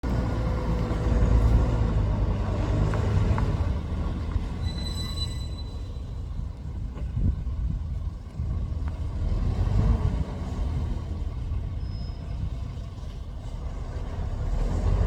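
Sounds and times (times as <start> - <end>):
diesel truck engine running: 0.0 - 4.6
high-pitched squeal: 4.6 - 6.1.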